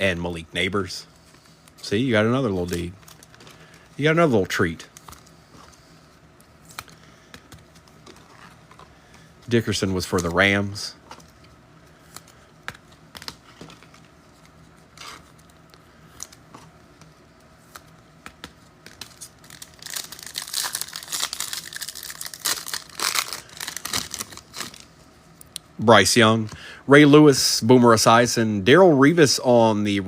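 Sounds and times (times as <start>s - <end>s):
foil wrapper tearing and crinkling: 18.9s - 24.9s.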